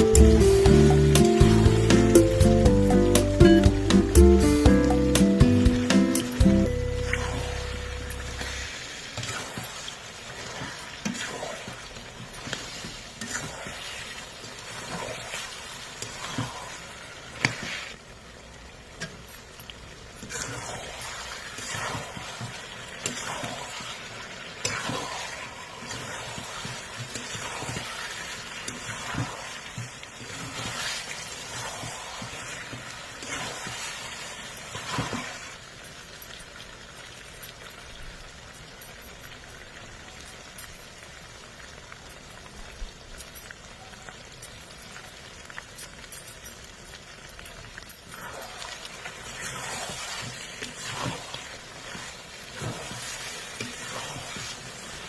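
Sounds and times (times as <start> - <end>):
food sizzling in a pan: 0.0 - 55.0
spoon scraping pan: 48.2 - 55.0.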